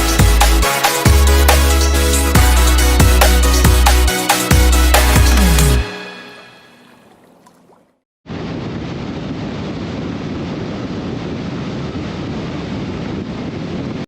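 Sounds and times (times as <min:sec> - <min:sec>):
wind rushing over microphone: 0:08.3 - 0:14.0.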